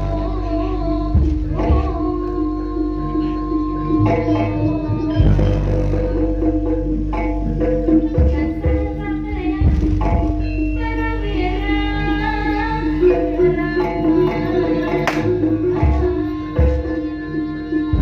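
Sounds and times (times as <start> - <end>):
hand-drum strokes: 0.0 - 18.0
bending melody line: 0.7 - 18.0
held low tone: 1.1 - 7.0.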